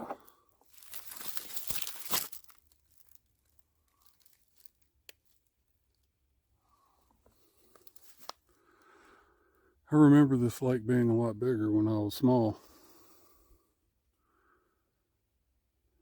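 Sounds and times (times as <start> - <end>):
rustling crinkling noise: 0.0 - 6.0, 7.2 - 8.5.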